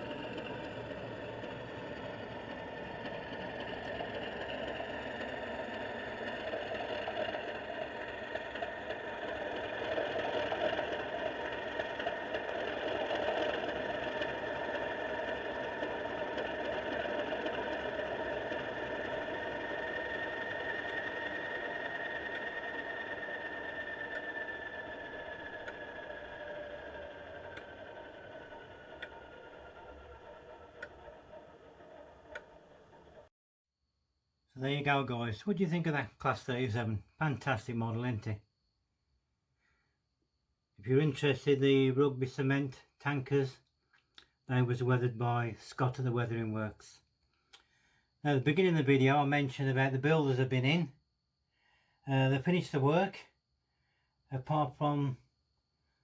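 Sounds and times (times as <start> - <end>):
model locomotive motor hum: 0.0 - 33.3.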